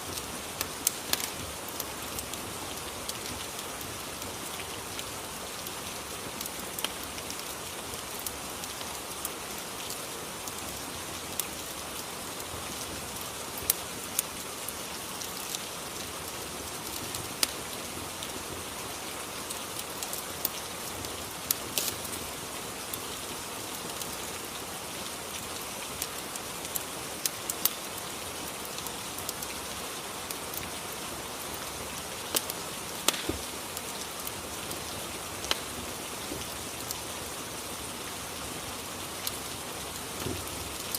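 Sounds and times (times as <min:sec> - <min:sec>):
rain hiss: 0:00.0 - 0:40.9
sharp little pops and clicks: 0:32.3 - 0:33.5.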